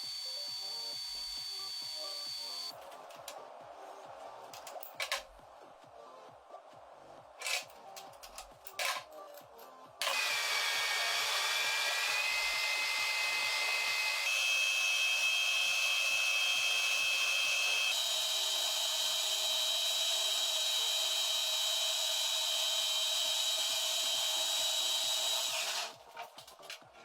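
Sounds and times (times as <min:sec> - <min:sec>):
electric motor whine: 0:00.0 - 0:02.7, 0:10.0 - 0:26.0.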